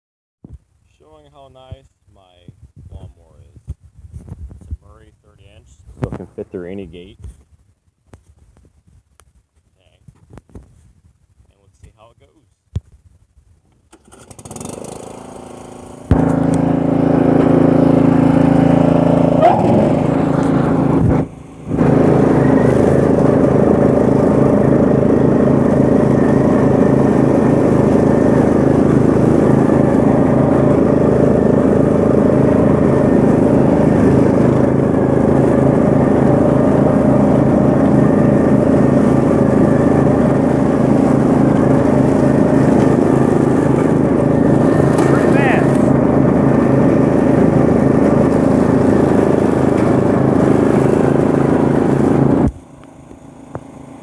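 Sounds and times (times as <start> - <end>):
riding lawn mower engine running: 13.7 - 54.0.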